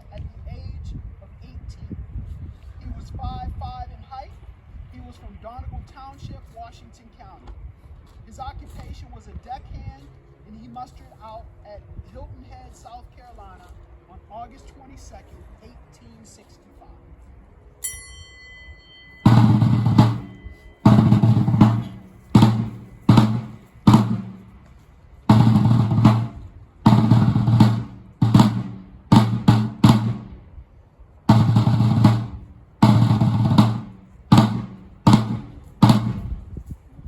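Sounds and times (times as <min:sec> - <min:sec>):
short high ringing tone: 0:17.8 - 0:21.0
bass and snare drum cadence: 0:19.2 - 0:30.6, 0:31.3 - 0:36.8.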